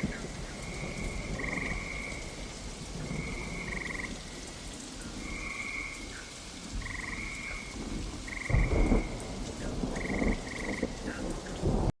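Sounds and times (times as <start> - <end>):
frogs trilling: 0.0 - 2.3, 3.0 - 11.3
rain falling: 0.0 - 12.0
low thunder rumbling: 6.7 - 11.9.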